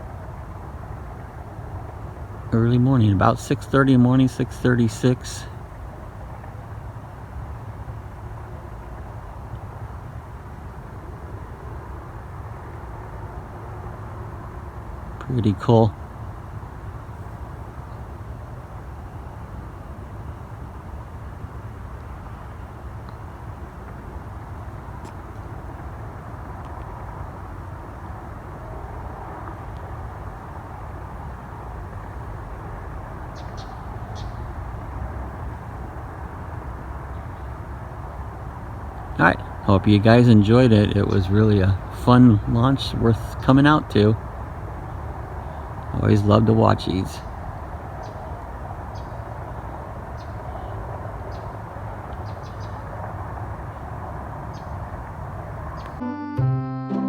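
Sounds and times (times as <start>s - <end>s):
low outdoor rumble: 0.0s - 56.0s
small birds chirping: 12.7s - 55.0s, 55.6s - 56.0s.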